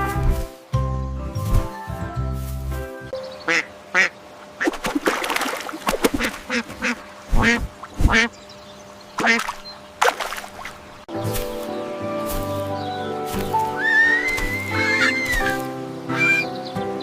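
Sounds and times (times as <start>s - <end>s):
duck quacking: 3.4s - 4.8s, 6.1s - 8.3s, 9.2s - 9.6s, 13.8s - 16.5s.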